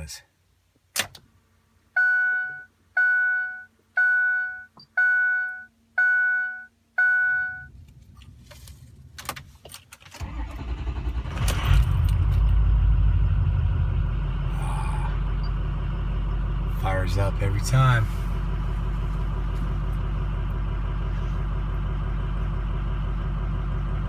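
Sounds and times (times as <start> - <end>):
dashboard warning chime: 2.0 - 7.7
diesel engine starting and idling: 10.0 - 24.0.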